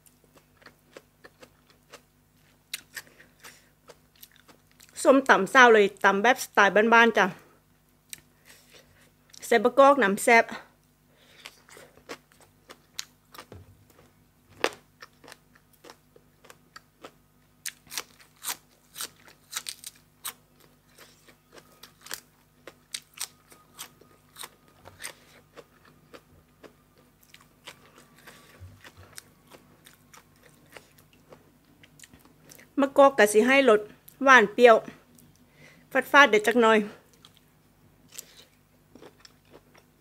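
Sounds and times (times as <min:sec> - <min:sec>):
crunching and chewing: 0:00.0 - 0:05.0, 0:11.2 - 0:32.7, 0:37.1 - 0:40.0.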